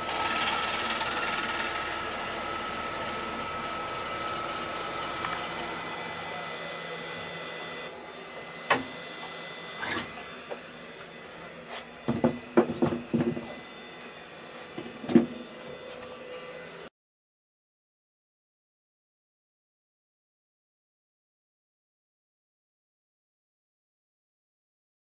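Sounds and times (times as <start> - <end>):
woodturning lathe whining: 0.0 - 16.9.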